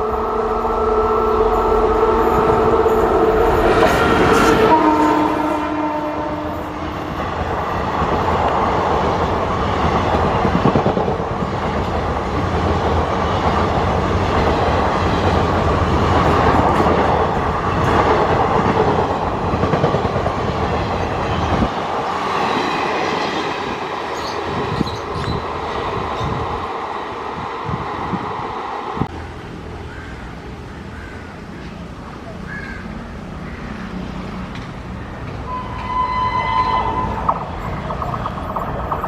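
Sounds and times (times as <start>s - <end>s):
train rumble: 0.0s - 39.0s
wheels clattering over rail joints: 37.0s - 39.0s.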